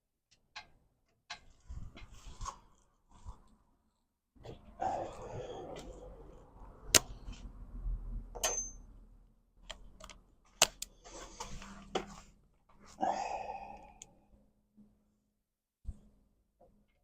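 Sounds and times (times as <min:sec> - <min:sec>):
small hard parts clicking and tapping: 0:00.3 - 0:02.1.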